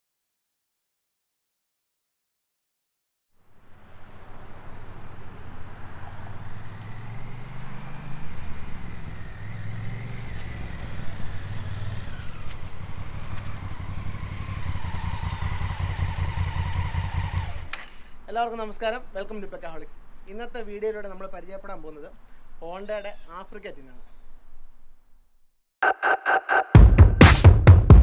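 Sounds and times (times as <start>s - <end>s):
motorcycle engine revving: 3.7s - 18.0s.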